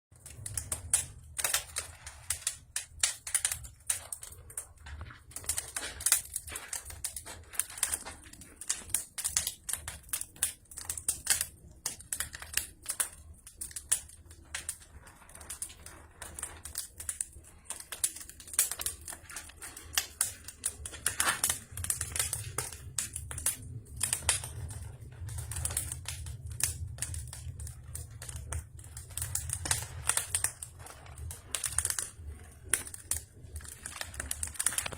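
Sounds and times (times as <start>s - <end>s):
wood fire crackling: 0.1s - 34.9s
low steady rumble: 14.4s - 34.9s.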